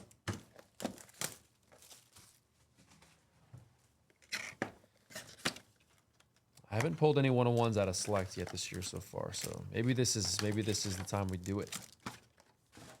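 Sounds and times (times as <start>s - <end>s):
plastic wrapping tearing: 0.0s - 2.4s, 6.7s - 13.0s
soft plastic rustling: 0.0s - 13.0s.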